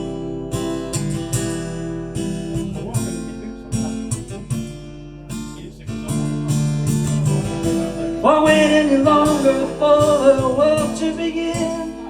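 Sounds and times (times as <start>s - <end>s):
acoustic guitar strumming: 0.0s - 12.0s
person singing: 7.4s - 12.0s.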